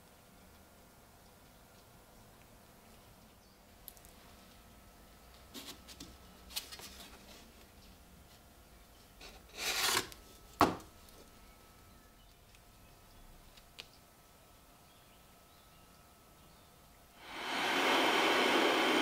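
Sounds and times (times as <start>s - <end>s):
rubbing scrape: 9.2s - 10.1s.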